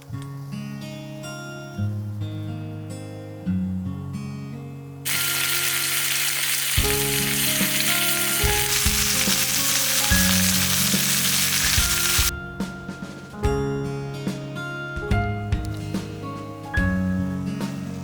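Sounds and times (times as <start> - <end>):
meat sizzling in a pan: 5.1 - 12.3.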